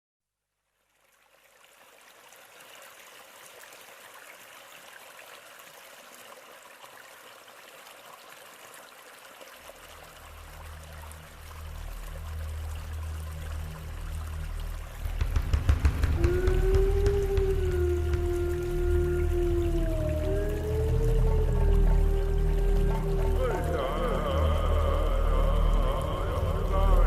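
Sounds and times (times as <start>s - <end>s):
flowing water: 0.7s - 27.0s.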